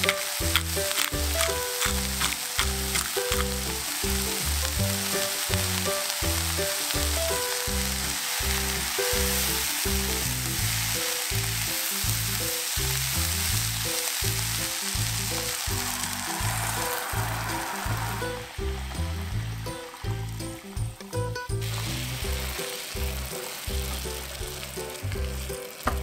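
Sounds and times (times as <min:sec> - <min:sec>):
cream pouring: 0:00.0 - 0:20.7
background music with low beat: 0:00.0 - 0:26.0
mushrooms and onions sizzling: 0:00.0 - 0:26.0.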